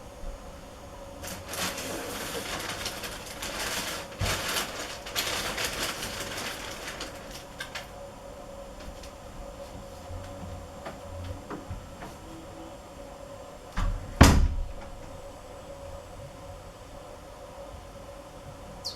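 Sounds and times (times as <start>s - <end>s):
faint steady hum: 0.0s - 18.9s
birds rustling and fluttering: 1.2s - 8.0s.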